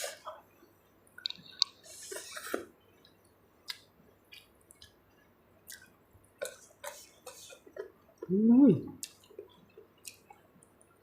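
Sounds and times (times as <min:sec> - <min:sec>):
wet chewing and smacking: 0:03.0 - 0:08.3, 0:09.0 - 0:11.0.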